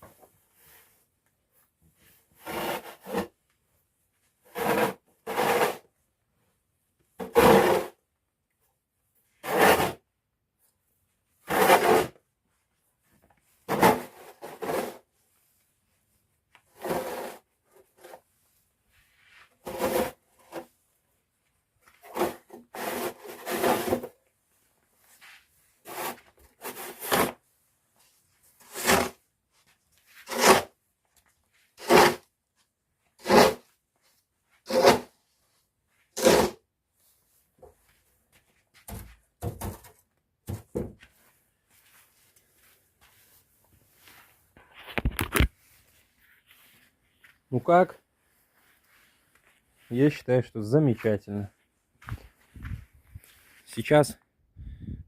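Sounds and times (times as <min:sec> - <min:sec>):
shovel scraping snow: 0:02.4 - 0:03.3, 0:04.5 - 0:05.9, 0:07.2 - 0:08.0, 0:09.4 - 0:10.0, 0:11.4 - 0:12.2, 0:13.7 - 0:15.1, 0:16.7 - 0:18.2, 0:19.6 - 0:20.7, 0:22.0 - 0:24.1, 0:25.2 - 0:27.4, 0:28.6 - 0:29.2, 0:30.1 - 0:30.8, 0:31.8 - 0:32.3, 0:33.2 - 0:33.7, 0:34.6 - 0:35.1, 0:36.1 - 0:36.6.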